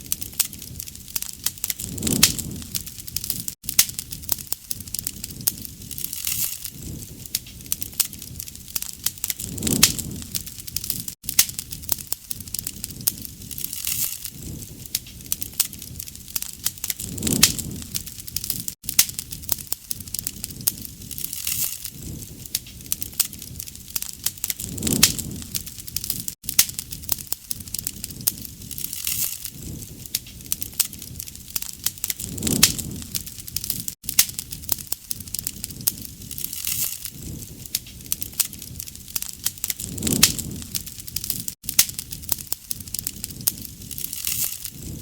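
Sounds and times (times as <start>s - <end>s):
campfire crackling: 0.0s - 45.0s
rush of flame: 0.0s - 45.0s.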